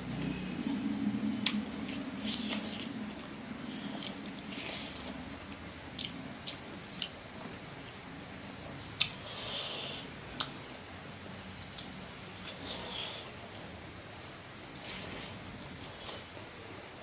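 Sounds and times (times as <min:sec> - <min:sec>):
wet chewing and lip smacks: 0:00.7 - 0:07.2, 0:08.9 - 0:09.2, 0:10.4 - 0:10.6.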